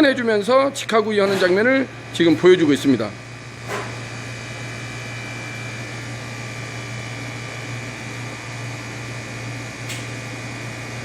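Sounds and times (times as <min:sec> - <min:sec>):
fans or motors humming: 0:00.0 - 0:11.0
small click: 0:09.9 - 0:10.1.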